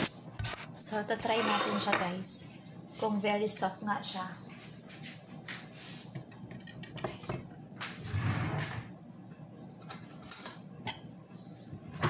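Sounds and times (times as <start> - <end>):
board sliding and scraping: 8.0 - 8.9.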